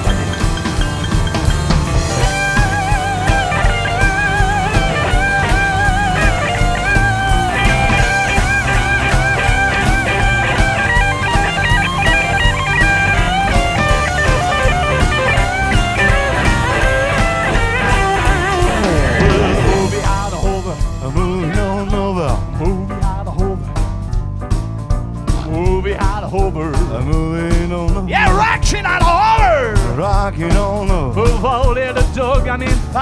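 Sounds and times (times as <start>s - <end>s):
lead guitar bent notes: 0.0s - 20.8s
bass guitar: 0.0s - 33.0s
drum kit: 0.0s - 33.0s.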